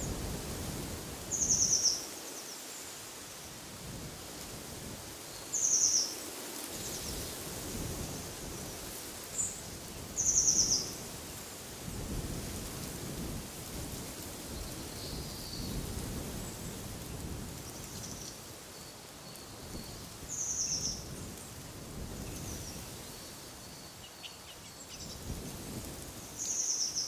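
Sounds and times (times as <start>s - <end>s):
wind rumbling on microphone: 0.0s - 2.0s, 3.4s - 5.5s, 6.6s - 18.6s, 19.2s - 24.0s, 24.6s - 27.0s
songbird calling: 5.4s - 6.1s, 19.2s - 21.0s.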